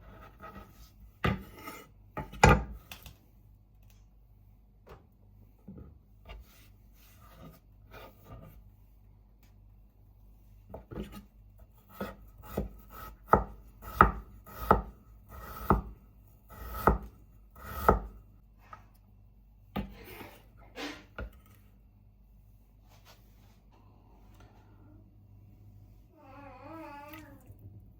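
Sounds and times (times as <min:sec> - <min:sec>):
knife chopping on cutting board: 0:11.8 - 0:15.9, 0:16.5 - 0:18.2.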